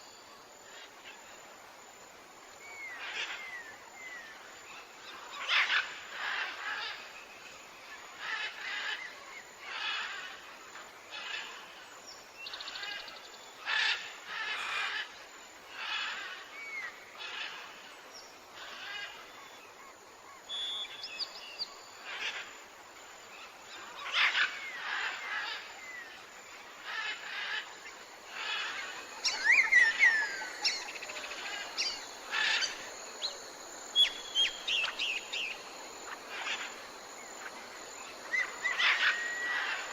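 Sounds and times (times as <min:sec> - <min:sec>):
birds calling: 0:28.3 - 0:37.6.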